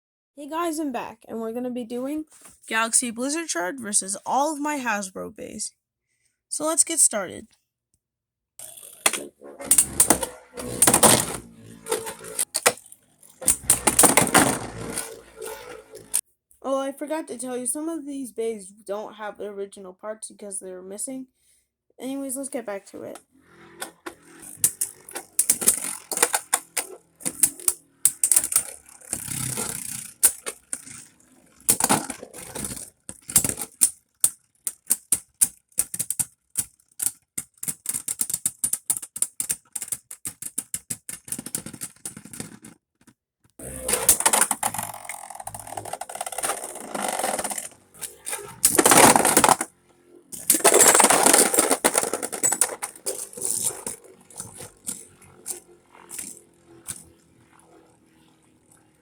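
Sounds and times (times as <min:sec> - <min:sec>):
spinning tops clacking: 0:08.6 - 0:16.2, 0:23.6 - 0:33.9, 0:43.6 - 0:49.7, 0:50.4 - 0:57.9
spinning tops rattling and scraping: 0:08.6 - 0:16.2, 0:23.1 - 0:37.1, 0:43.6 - 0:59.0.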